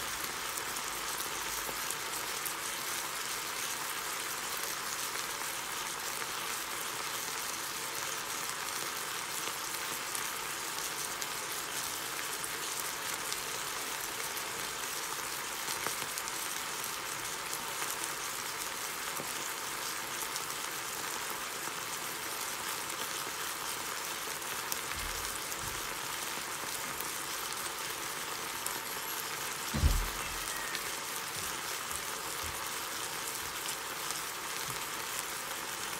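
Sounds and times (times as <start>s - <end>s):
meat sizzling in a frying pan: 0.0s - 35.9s
dull thump: 29.7s - 30.5s.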